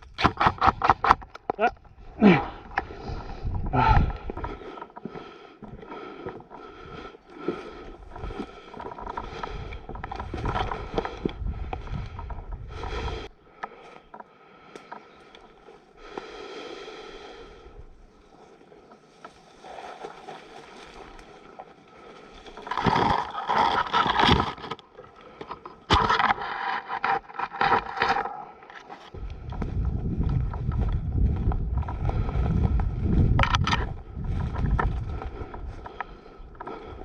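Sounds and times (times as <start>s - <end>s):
scraping and rustling movement: 18.9s - 29.2s.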